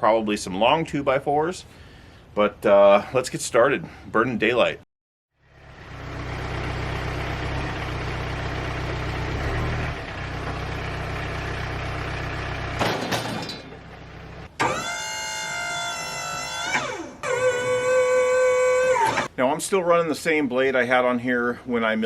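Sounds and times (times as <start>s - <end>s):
engine idling: 5.4s - 14.8s.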